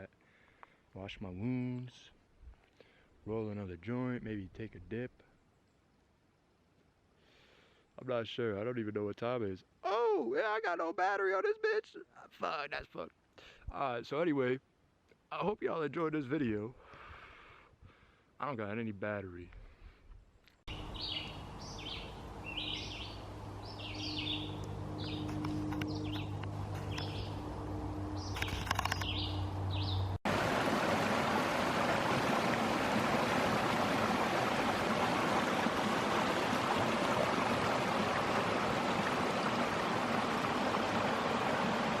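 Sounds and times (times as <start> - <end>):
bird chirping: 20.7 - 27.5, 28.1 - 30.2
low steady hum: 23.1 - 28.4
flowing water rushing: 30.3 - 42.0.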